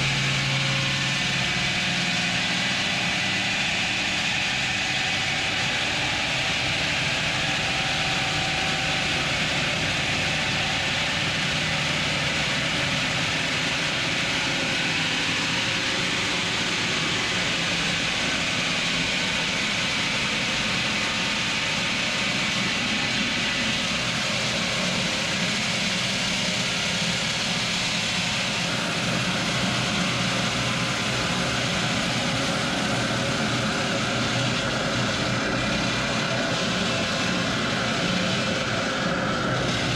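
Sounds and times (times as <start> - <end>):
heavy machinery drone and hiss: 0.0 - 39.9.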